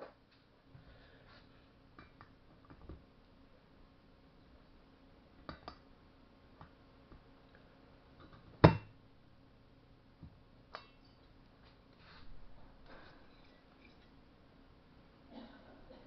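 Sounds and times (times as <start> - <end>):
loud metal knock with ring: 8.6 - 8.9.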